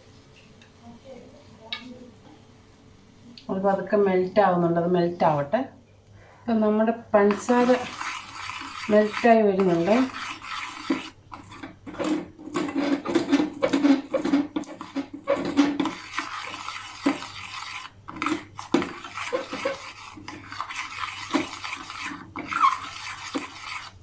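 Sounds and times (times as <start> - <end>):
spoon scraping sugar in a pan: 7.2 - 24.0.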